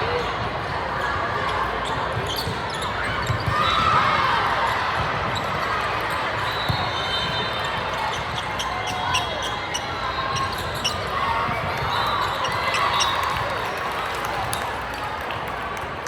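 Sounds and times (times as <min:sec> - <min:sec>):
sneakers squeaking: 0:00.1 - 0:13.6
basketball bouncing on court: 0:01.9 - 0:04.3.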